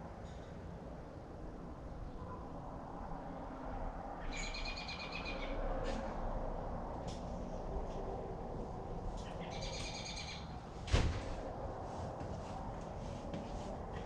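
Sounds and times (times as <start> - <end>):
bird chirping: 4.2 - 5.6, 9.2 - 10.5.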